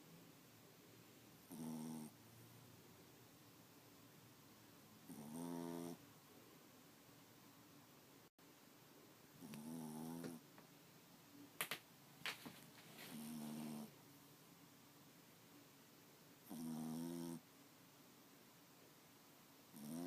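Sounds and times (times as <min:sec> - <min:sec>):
dog snoring: 0:01.5 - 0:02.2, 0:05.0 - 0:06.0, 0:09.4 - 0:10.4, 0:13.1 - 0:13.9, 0:16.4 - 0:17.4, 0:19.7 - 0:20.0.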